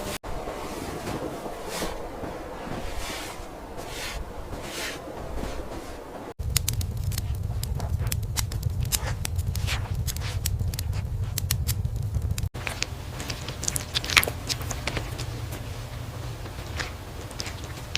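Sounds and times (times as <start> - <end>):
steady low rumble: 0.0 - 17.9
crackling and sharp clicks: 6.4 - 15.7, 16.4 - 17.9.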